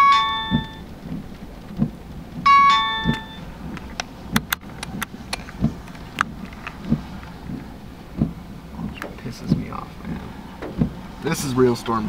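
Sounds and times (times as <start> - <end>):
electronic chime: 0.0 - 0.8, 2.5 - 3.4
sharp clicks: 3.0 - 6.8
soft low thumps: 5.6 - 11.0.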